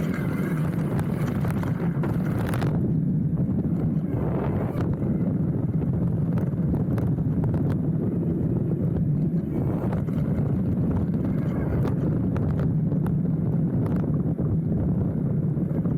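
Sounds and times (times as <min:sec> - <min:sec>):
bike clicks and rattles: 0:00.0 - 0:02.8
tyres rumbling on dirt: 0:00.0 - 0:12.6
wind on microphone: 0:00.0 - 0:15.9.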